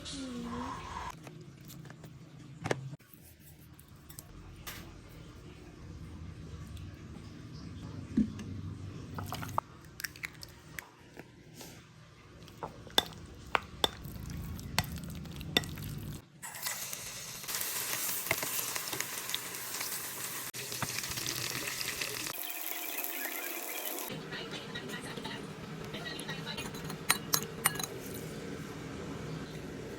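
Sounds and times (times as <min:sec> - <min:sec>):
chicken sizzling in hot oil: 0:15.8 - 0:24.1.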